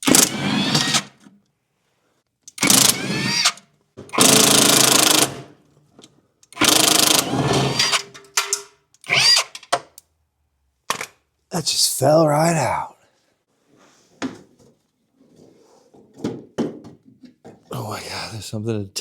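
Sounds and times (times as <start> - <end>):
impact wrench bursts: 0.0 - 1.2, 2.6 - 5.5, 6.6 - 8.0, 9.0 - 9.6.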